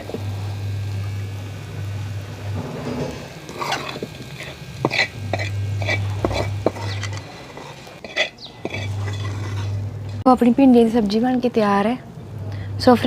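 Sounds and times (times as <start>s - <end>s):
low steady hum: 0.0s - 13.0s
metal spoon clinking on cookware: 8.0s - 9.6s.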